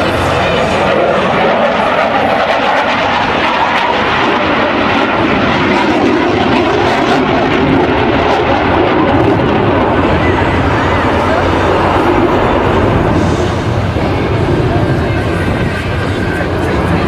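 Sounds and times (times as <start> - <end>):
jet engine noise: 0.0 - 17.0.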